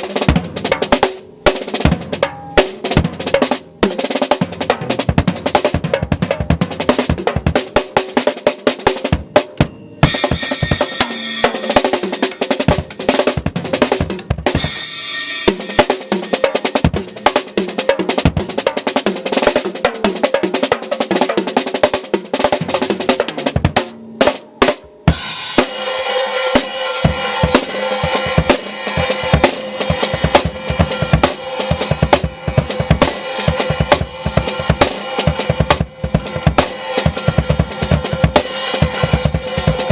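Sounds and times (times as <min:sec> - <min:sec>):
drum kit fills: 0:00.0 - 0:39.9
cymbal crashes: 0:09.6 - 0:13.2, 0:14.6 - 0:17.6, 0:25.1 - 0:39.9.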